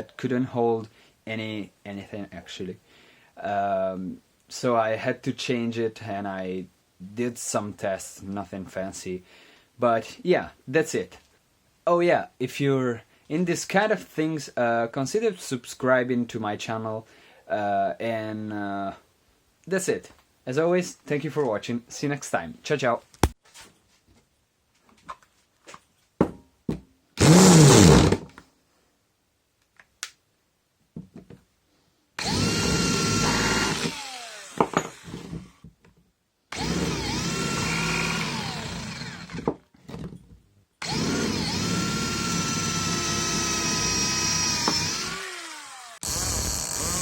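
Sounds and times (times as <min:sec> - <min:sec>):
cordless drill motor whine: 0:27.2 - 0:28.1, 0:32.2 - 0:35.3, 0:36.5 - 0:39.5, 0:40.8 - 0:47.0.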